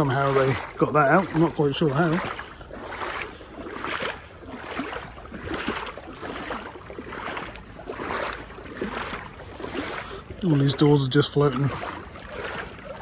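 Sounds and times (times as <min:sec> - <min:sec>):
wading through water splashing: 0:00.0 - 0:13.0.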